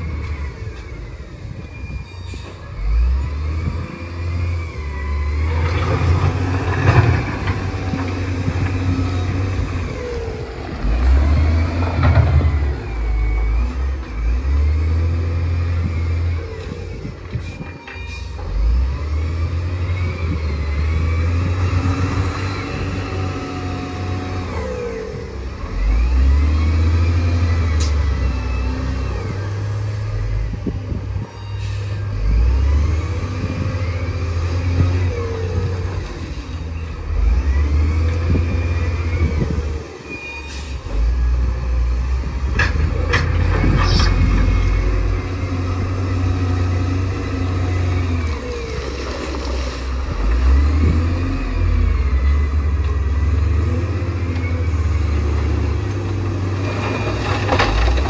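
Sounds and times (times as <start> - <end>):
bulldozer diesel engine: 0.0 - 58.0.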